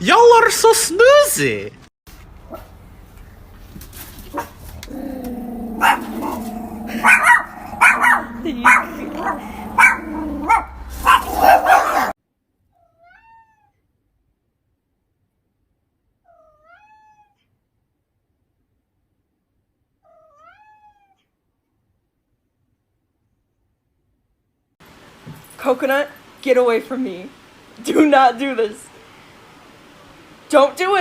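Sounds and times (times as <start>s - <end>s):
loud animal cries: 4.9s - 12.1s
cat meowing faintly: 12.7s - 13.9s, 16.2s - 17.5s, 20.0s - 21.3s.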